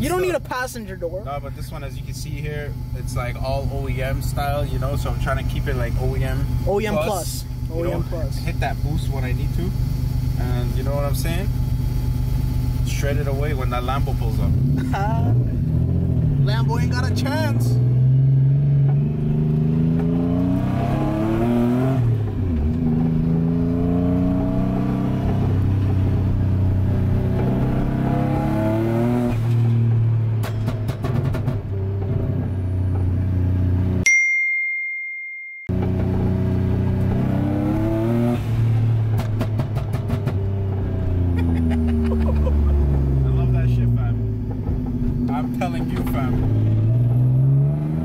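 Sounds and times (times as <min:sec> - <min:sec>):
car engine accelerating hard: 0:02.6 - 0:34.0, 0:35.7 - 0:48.0
exhaust crackling pops: 0:29.3 - 0:33.3, 0:38.4 - 0:47.2.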